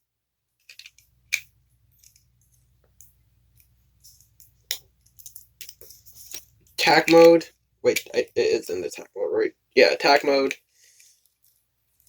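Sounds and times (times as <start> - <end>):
plastic toy parts clicking: 0.6 - 2.3, 7.9 - 8.8.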